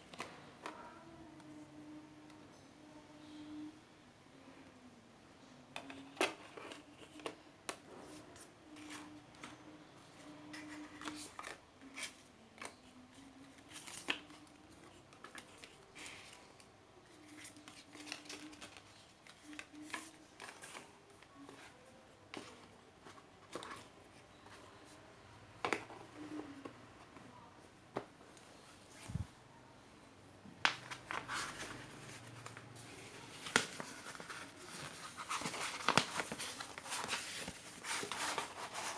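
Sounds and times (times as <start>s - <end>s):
paper and plastic crinkling: 10.5s - 24.9s, 30.6s - 38.9s.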